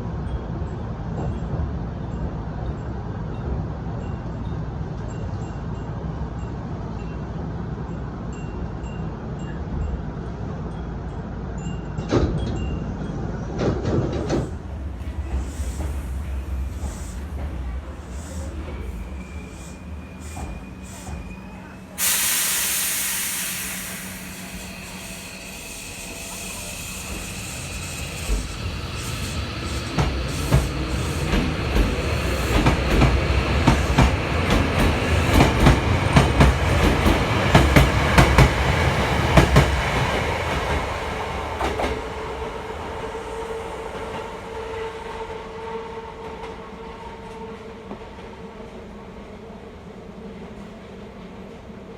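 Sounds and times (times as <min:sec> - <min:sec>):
train wheels clattering over rail joints: 0:13.6 - 0:42.2
air hissing: 0:14.3 - 0:45.0.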